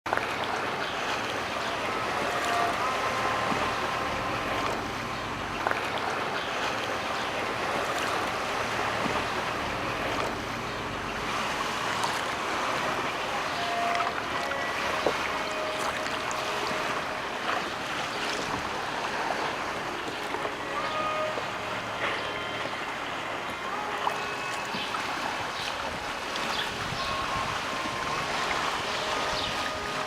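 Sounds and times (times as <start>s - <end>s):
sea water and small waves: 0.1s - 30.0s
wind noise on microphone: 0.4s - 30.0s.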